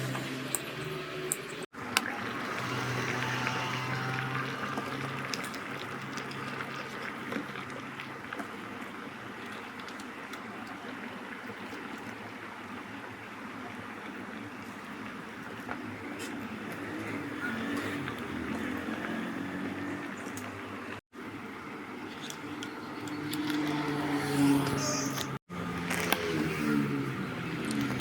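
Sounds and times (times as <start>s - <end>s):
water boiling in electric kettle: 1.8s - 22.4s.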